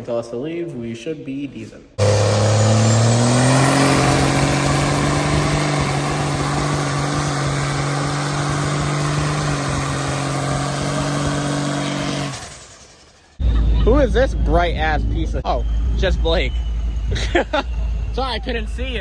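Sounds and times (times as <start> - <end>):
heavy rushing noise: 2.0 - 13.3
vehicle engine revving high: 2.0 - 13.4.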